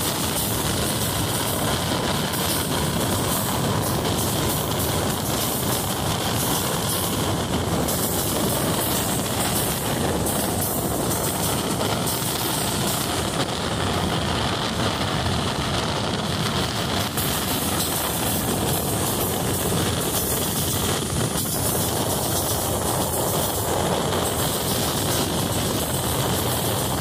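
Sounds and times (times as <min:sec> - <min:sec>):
train rumbling along track: 0:00.0 - 0:27.0.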